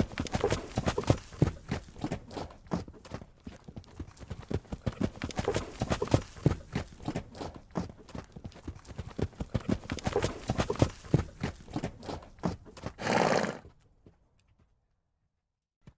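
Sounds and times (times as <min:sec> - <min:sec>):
horse vocal sound: 0:00.0 - 0:03.0, 0:04.6 - 0:08.1, 0:09.3 - 0:13.8
horse hooves clip-clopping: 0:00.0 - 0:14.8.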